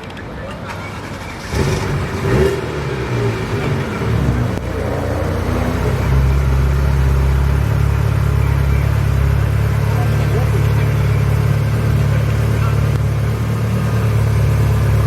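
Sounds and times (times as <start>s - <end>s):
sports car engine running: 0.8s - 15.0s.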